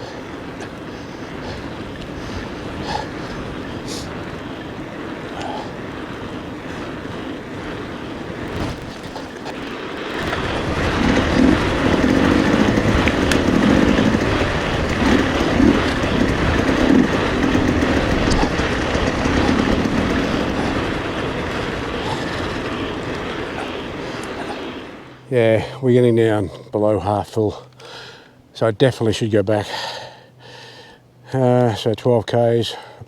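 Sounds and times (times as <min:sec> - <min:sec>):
wind buffeting microphone: 0:00.0 - 0:25.6
bike tyres and frame rattling: 0:00.2 - 0:25.0.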